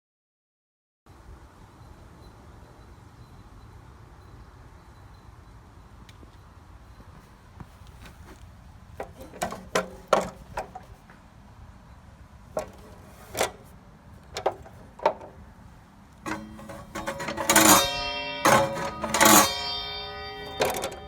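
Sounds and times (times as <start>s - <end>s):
knocks and clunks of handling: 9.0s - 11.2s, 12.5s - 15.5s, 16.3s - 19.5s, 20.5s - 21.0s
guitar music: 16.3s - 21.0s.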